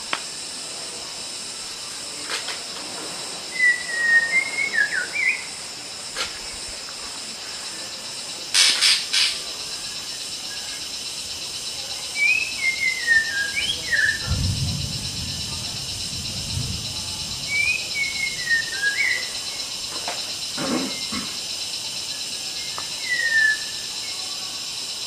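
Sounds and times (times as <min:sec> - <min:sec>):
bird whistling phrases: 0:03.6 - 0:05.5, 0:12.2 - 0:14.2, 0:17.5 - 0:19.3, 0:23.0 - 0:23.8.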